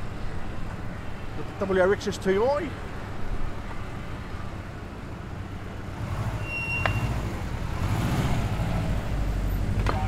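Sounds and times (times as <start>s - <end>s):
car engine rumbling past: 5.9s - 10.0s
short high beep: 6.4s - 7.1s.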